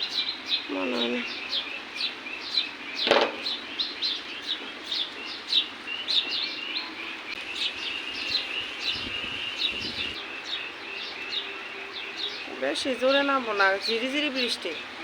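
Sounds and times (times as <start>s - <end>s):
small birds chirping: 0.0s - 15.0s
steady hiss: 7.3s - 10.2s.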